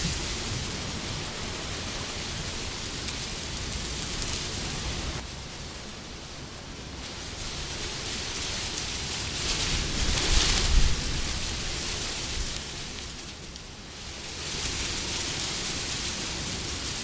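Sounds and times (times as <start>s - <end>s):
wind rushing: 0.0s - 2.7s.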